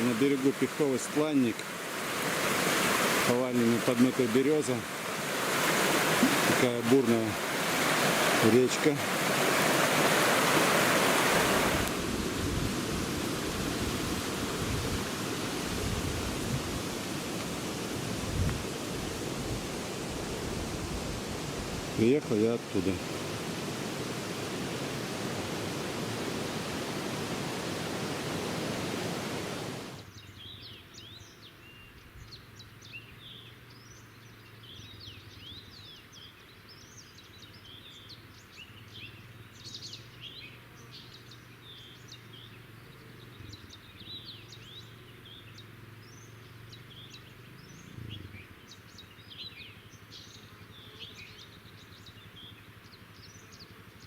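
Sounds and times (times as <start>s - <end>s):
rushing river water: 0.0s - 30.1s
small birds singing: 0.0s - 54.0s.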